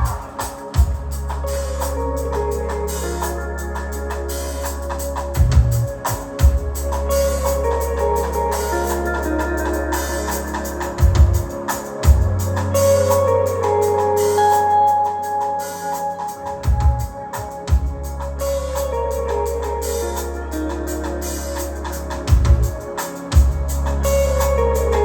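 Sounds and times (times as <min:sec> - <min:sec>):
heavy drum hits: 0:11.0 - 0:12.4.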